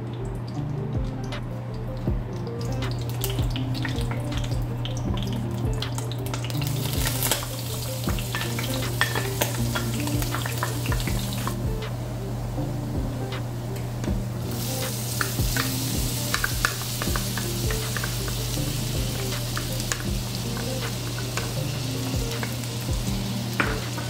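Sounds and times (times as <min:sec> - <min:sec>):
garlic frying: 0:00.0 - 0:24.0
butter and oil sizzling in a pan: 0:02.9 - 0:11.7, 0:14.3 - 0:24.0.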